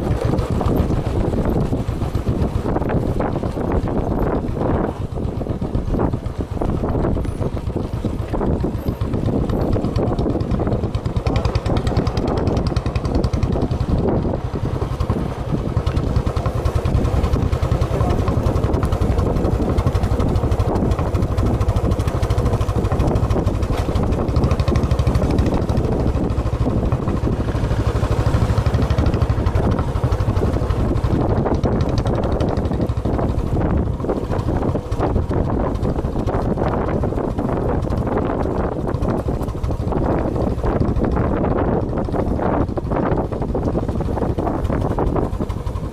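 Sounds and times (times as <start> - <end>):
motorcycle engine rumbling: 0.0 - 45.9
wind noise on microphone: 0.0 - 45.9.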